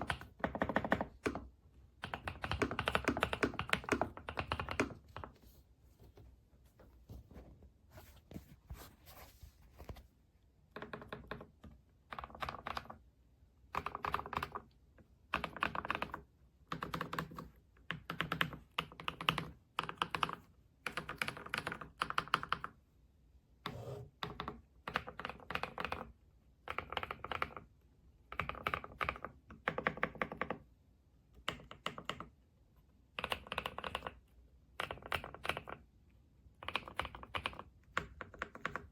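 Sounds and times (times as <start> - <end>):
mechanical keyboard typing: 0.0 - 5.3, 10.7 - 13.0, 13.7 - 14.7, 15.3 - 22.8, 23.7 - 27.7, 28.3 - 30.6, 31.4 - 32.4, 33.1 - 34.2, 34.8 - 35.8, 36.6 - 38.9.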